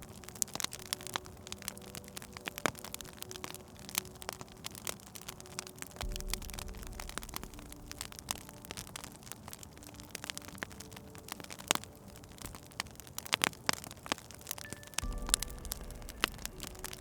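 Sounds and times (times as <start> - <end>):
sharp pops and snaps: 0.0 - 17.0
wood fire crackling: 0.0 - 17.0
low rumble: 6.0 - 9.2, 15.0 - 17.0.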